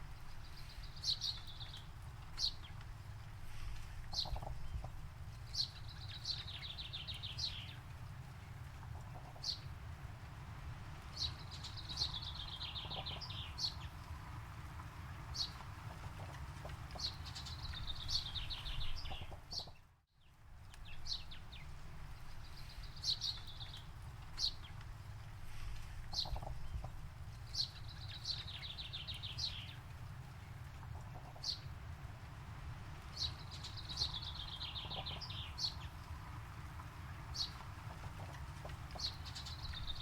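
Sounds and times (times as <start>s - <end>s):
low steady rumble: 0.0s - 40.0s
birds singing: 4.1s - 7.8s, 11.0s - 19.9s, 26.1s - 31.7s, 33.0s - 40.0s.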